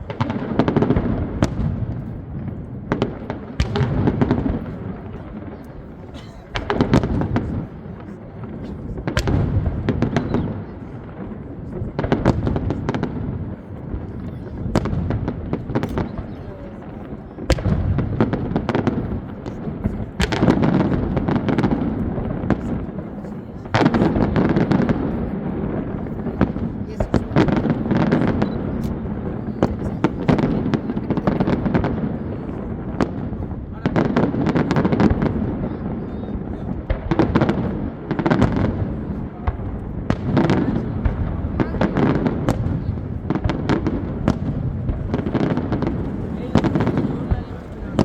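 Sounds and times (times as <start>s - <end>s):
fireworks bangs and crackles: 0.0s - 48.0s
rumble of fireworks explosions: 0.0s - 48.0s.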